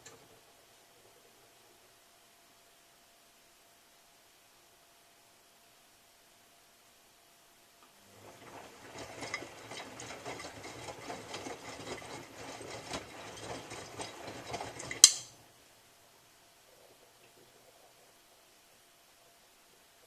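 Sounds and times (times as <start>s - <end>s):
washing machine drum churning: 8.0s - 15.4s
washing machine click: 15.0s - 15.3s.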